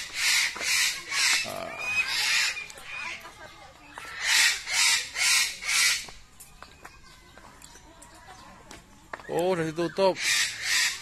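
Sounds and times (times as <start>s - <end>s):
bird squawking harshly: 4.1s - 6.0s, 10.1s - 11.0s.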